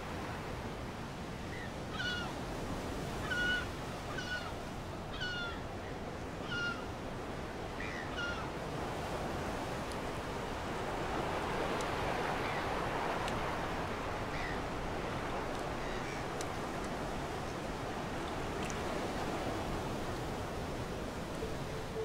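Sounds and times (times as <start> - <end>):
surf on rocky shore: 0.0 - 22.0.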